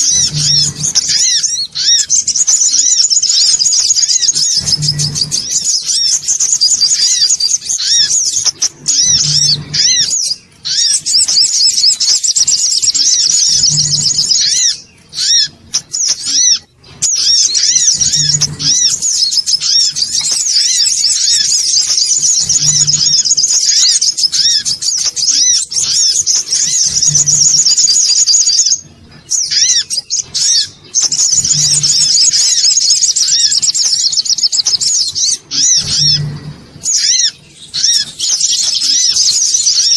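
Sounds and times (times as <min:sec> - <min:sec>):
bird rapid high chirps: 0:00.0 - 0:39.9.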